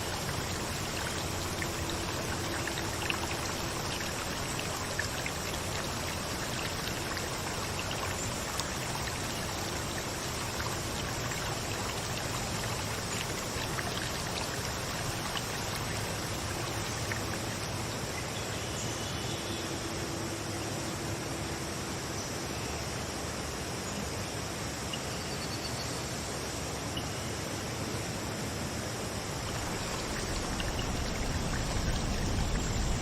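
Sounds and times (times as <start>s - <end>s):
flowing water rushing: 0.0s - 18.6s, 28.5s - 33.0s
water drips and splashes: 0.0s - 18.6s, 29.2s - 33.0s.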